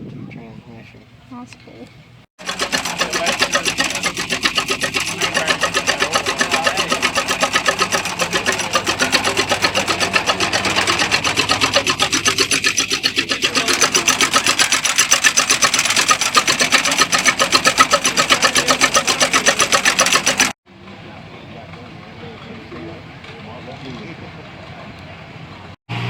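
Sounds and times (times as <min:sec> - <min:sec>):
machine clattering: 0:02.4 - 0:20.6.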